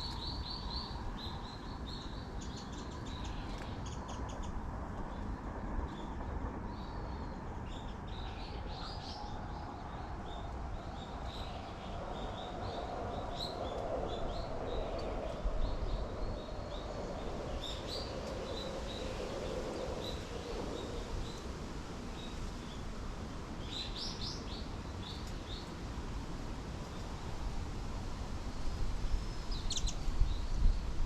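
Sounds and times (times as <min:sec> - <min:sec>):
small birds chirping: 0:29.2 - 0:30.6.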